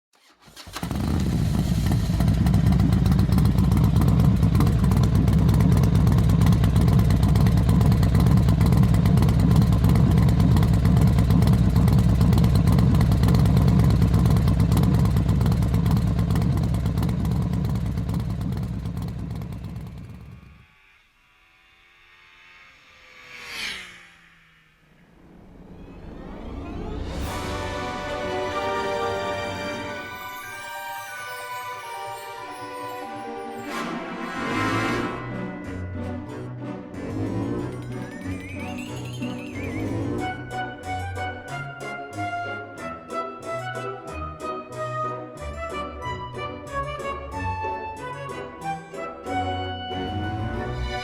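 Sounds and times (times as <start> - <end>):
motorcycle engine at speed: 0.7 - 20.6, 23.1 - 25.3
whoosh: 20.4 - 28.7
gliding music tones: 22.3 - 51.0.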